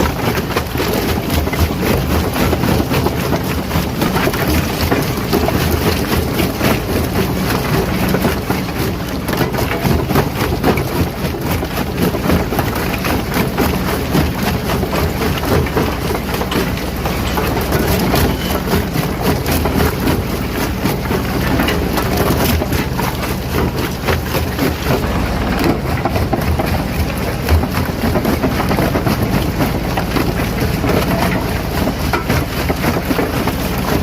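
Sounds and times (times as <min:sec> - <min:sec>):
stone crunching in rock crusher: 0:00.0 - 0:34.0
heavy machinery drone: 0:15.7 - 0:34.0.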